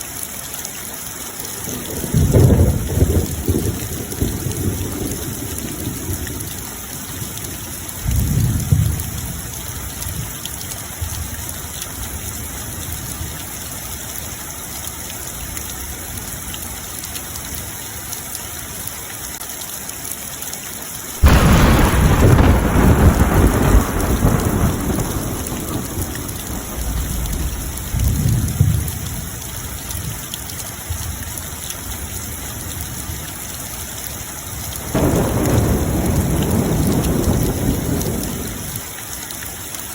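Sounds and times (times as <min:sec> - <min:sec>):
steady rain: 0:00.0 - 0:39.9
loud thunder clap: 0:01.7 - 0:06.3, 0:21.2 - 0:29.1, 0:34.8 - 0:38.8
thunder rumbling: 0:01.7 - 0:10.0, 0:21.2 - 0:29.9, 0:34.6 - 0:38.9.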